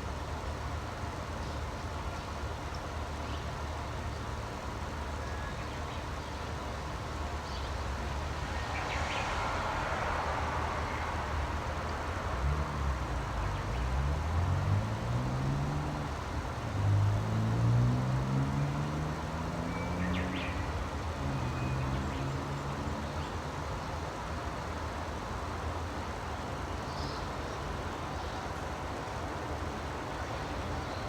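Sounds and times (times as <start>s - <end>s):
engine accelerating through gears: 11.9s - 23.2s
bird chirp: 19.6s - 23.4s.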